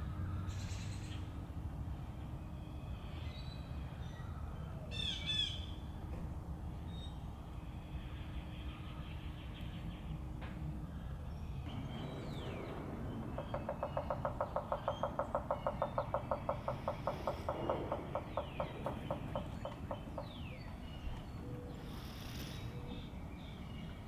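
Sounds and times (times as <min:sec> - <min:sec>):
woodpecker knocking on hollow wood: 0:11.7 - 0:22.6
faint bird chirps: 0:11.7 - 0:24.0.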